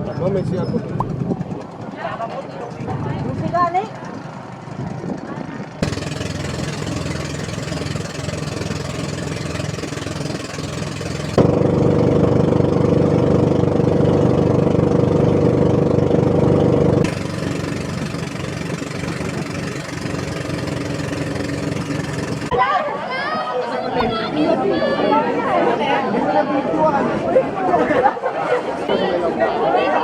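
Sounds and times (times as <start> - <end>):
boat engine running: 0.0 - 22.6, 23.9 - 24.7, 28.4 - 29.0.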